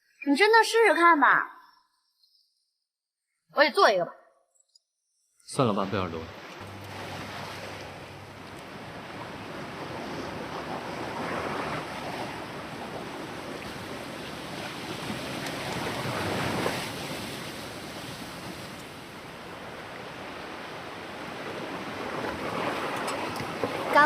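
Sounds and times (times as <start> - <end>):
ocean waves washing ashore: 5.5 - 24.0.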